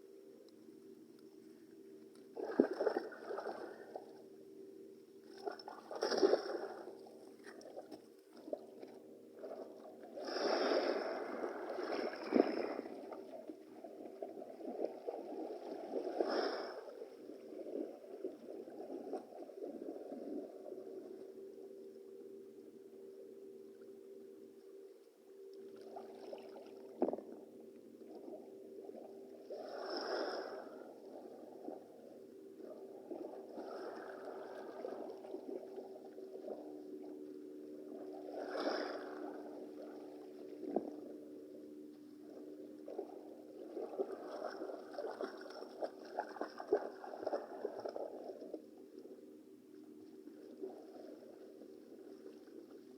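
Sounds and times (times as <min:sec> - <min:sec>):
low hum: 0:00.0 - 0:52.9
sea water splashing: 0:02.3 - 0:04.2, 0:05.2 - 0:21.2, 0:25.7 - 0:27.4, 0:28.0 - 0:32.0, 0:32.6 - 0:41.4, 0:42.2 - 0:49.1
small crackling splashes: 0:02.4 - 0:04.0, 0:05.3 - 0:09.7, 0:42.8 - 0:48.6.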